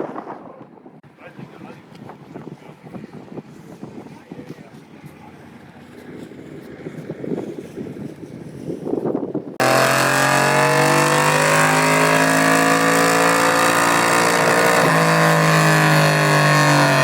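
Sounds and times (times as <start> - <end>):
loud engine running: 9.6 - 17.0.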